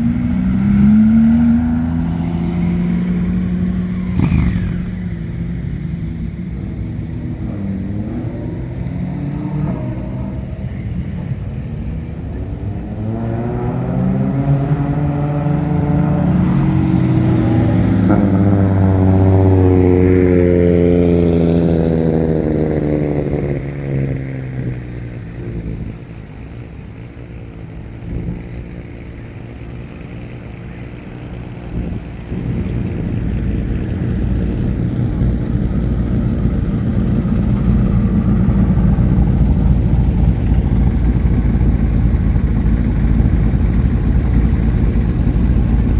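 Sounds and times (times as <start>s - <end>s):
vehicle accelerating past: 0.0s - 26.1s
low engine rumble: 0.0s - 45.9s.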